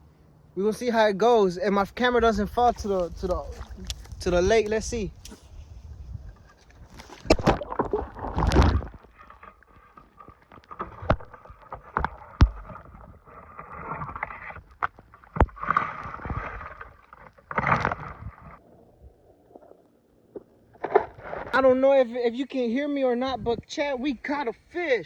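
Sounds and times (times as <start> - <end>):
fishing gear rustling: 2.4 - 18.6
water sloshing and splashing: 2.4 - 18.6.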